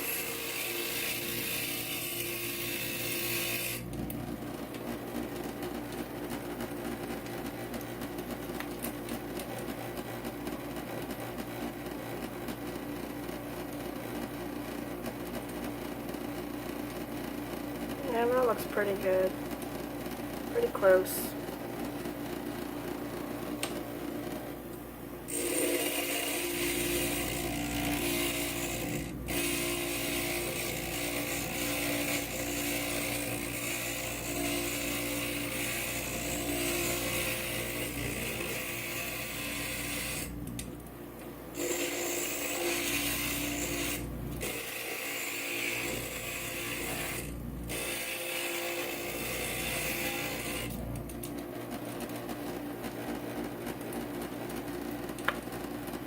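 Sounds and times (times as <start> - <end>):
grinder motor hum: 0.0 - 6.0, 25.3 - 40.7, 41.6 - 56.0.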